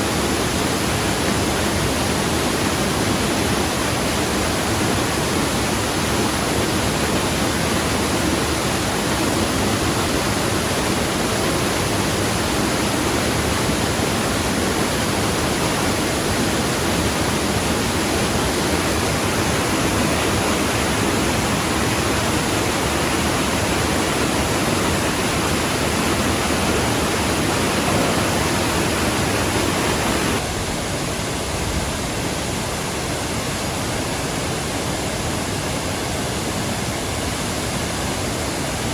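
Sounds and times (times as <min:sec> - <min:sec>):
water pouring over waterfall: 0:00.1 - 0:30.5.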